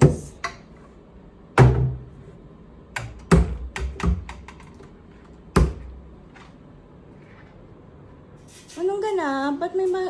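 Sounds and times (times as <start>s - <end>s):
wooden drawers and doors knocking: 3.0s - 4.6s.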